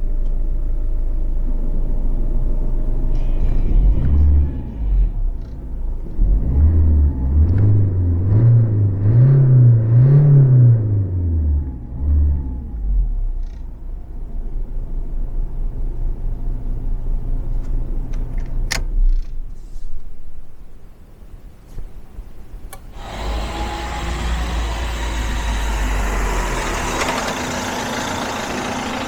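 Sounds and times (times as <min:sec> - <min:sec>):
diesel engine revving: 0:02.8 - 0:13.6, 0:22.9 - 0:29.0.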